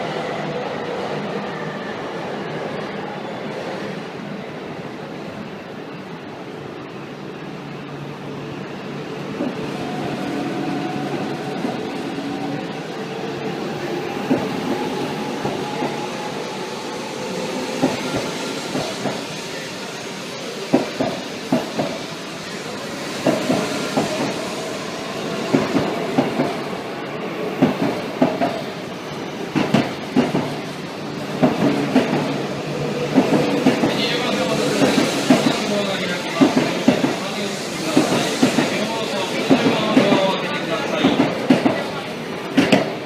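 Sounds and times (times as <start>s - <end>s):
train whine rising in pitch: 8.8s - 27.5s.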